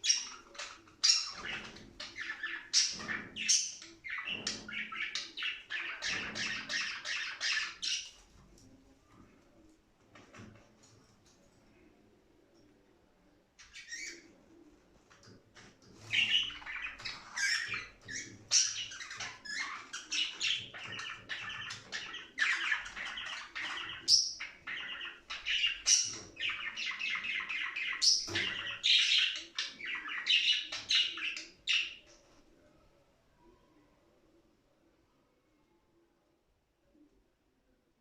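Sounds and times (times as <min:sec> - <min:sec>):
budgerigars warbling and chattering: 0:00.0 - 0:08.2, 0:13.6 - 0:14.3, 0:16.0 - 0:32.1.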